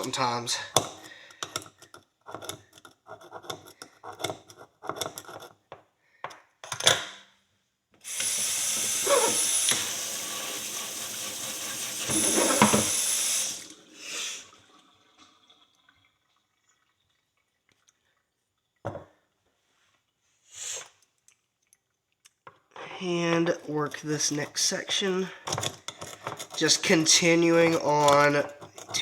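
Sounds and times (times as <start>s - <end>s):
hand tool scraping a horseshoe: 0.8s - 5.6s, 9.0s - 9.5s, 12.1s - 13.0s, 23.8s - 29.0s
running water: 8.1s - 18.8s.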